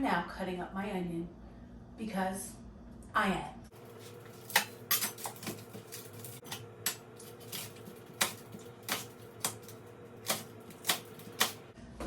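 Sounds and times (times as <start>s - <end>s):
knife chopping on cutting board: 3.8s - 11.6s.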